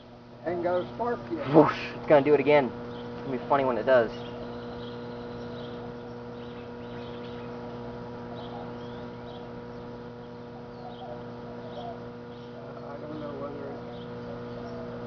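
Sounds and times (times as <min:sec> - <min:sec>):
microwave oven humming: 0:00.0 - 0:15.0.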